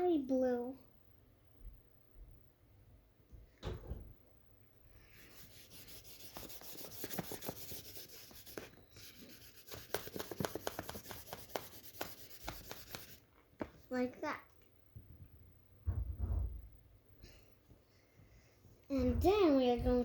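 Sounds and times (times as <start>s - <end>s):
coloring tool scribbling on paper: 5.2s - 13.2s.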